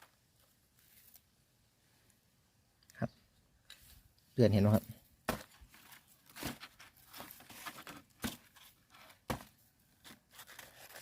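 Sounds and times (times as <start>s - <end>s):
material tearing and crinkling: 10.0s - 11.0s.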